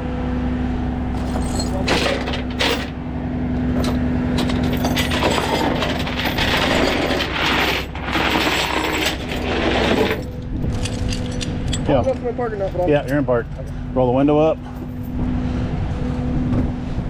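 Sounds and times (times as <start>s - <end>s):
truck engine running: 0.0s - 17.0s
metallic clanks and rattles: 1.2s - 3.0s, 3.6s - 13.8s.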